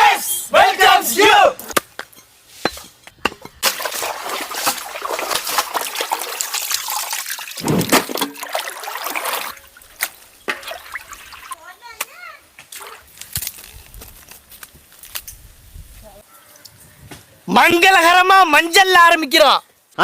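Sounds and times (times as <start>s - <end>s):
water pouring and splashing: 3.6s - 11.6s, 12.6s - 13.6s.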